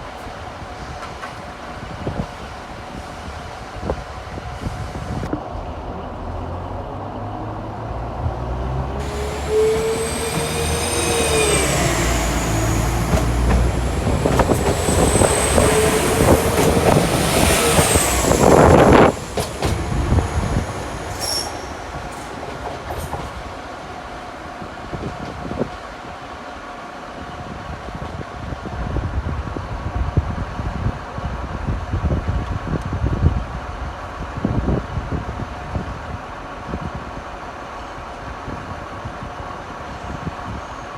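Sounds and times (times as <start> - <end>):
train rumbling: 0.0 - 40.9
wheel squeal on rails: 9.0 - 23.2.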